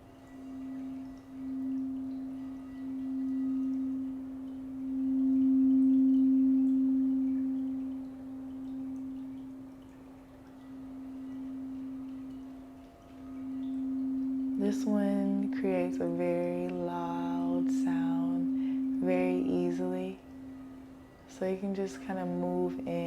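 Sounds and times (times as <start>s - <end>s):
singing bowl humming: 0.0s - 23.0s.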